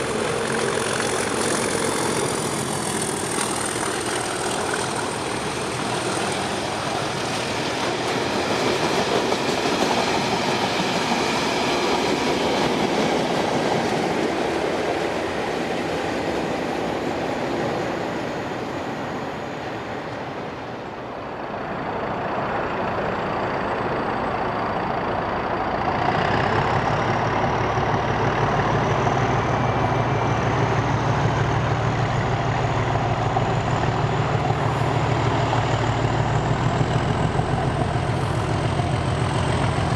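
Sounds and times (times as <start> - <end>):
train clattering on rails: 0.0 - 20.8, 21.7 - 39.9
deep diesel engine drone: 21.3 - 39.9.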